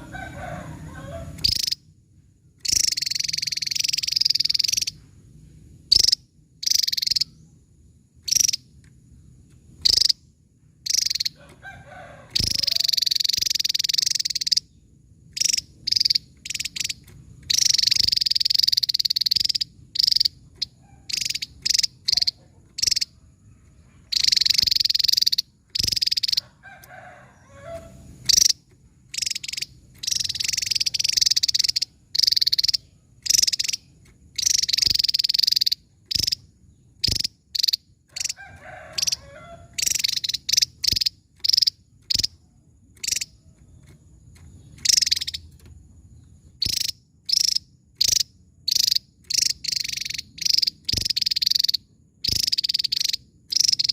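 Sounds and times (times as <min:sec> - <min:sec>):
bird singing high rapid notes: 0:01.3 - 0:01.9, 0:02.6 - 0:05.0, 0:10.9 - 0:11.4, 0:12.4 - 0:26.4, 0:27.4 - 0:38.4, 0:39.8 - 0:42.4, 0:43.0 - 0:45.6.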